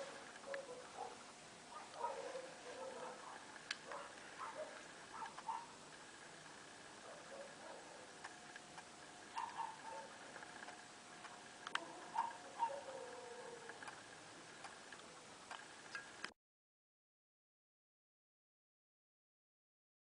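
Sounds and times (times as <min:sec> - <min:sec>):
steady faint hum: 0:00.0 - 0:16.3.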